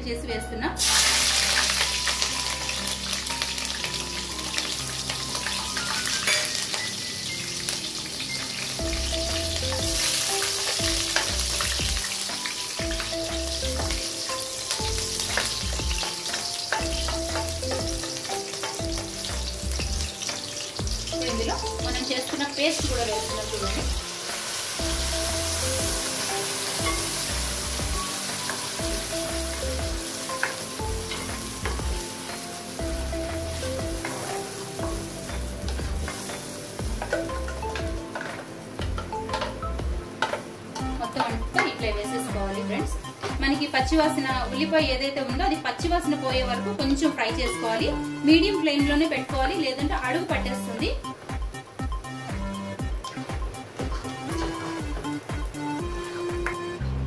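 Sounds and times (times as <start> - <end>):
background music with steady beat: 0.0 - 57.0
chillies sizzling in oil: 0.8 - 57.0
masala paste sizzling: 0.8 - 57.0.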